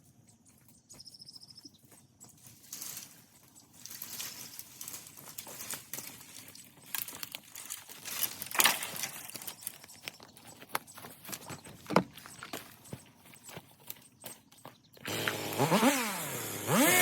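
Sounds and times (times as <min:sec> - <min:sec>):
footsteps crunching in dry brush: 0:00.0 - 0:15.7
sharp cracks of twigs: 0:03.8 - 0:12.0.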